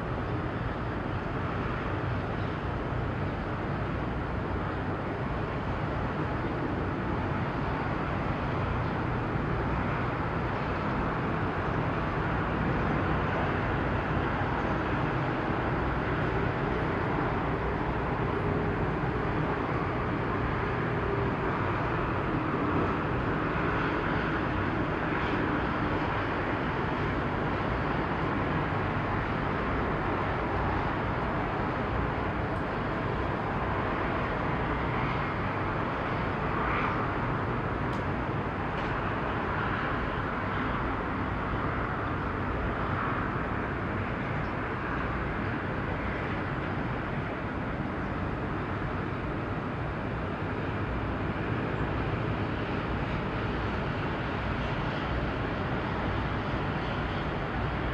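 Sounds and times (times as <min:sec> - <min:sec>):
ship engine drone: 0:00.0 - 0:38.7.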